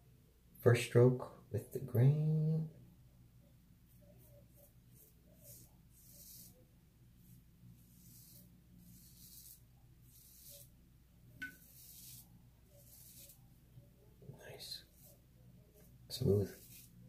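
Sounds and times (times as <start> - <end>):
razor scraping whiskers: 7.8 - 10.7, 11.4 - 13.4, 15.8 - 17.0.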